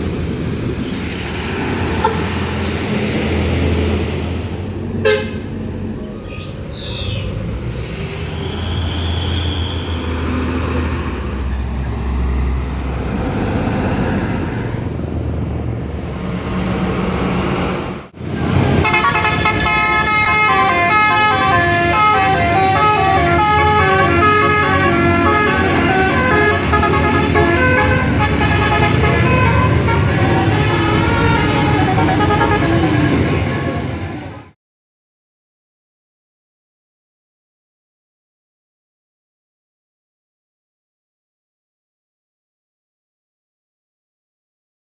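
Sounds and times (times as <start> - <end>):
road noise: 0.0 - 34.6
truck engine passing: 0.0 - 34.6
multi-tone horn playing a tune: 5.0 - 5.5, 18.8 - 33.2.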